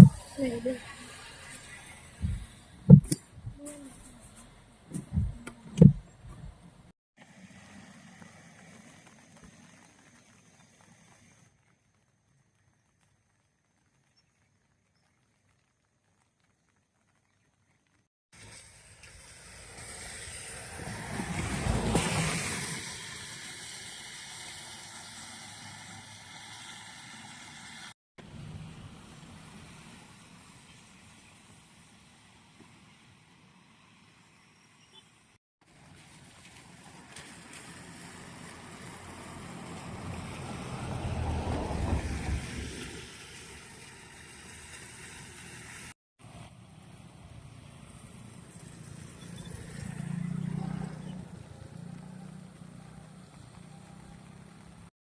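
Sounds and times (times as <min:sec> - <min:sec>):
vehicle passing by: 0:19.4 - 0:27.9, 0:37.3 - 0:44.3, 0:46.8 - 0:54.9.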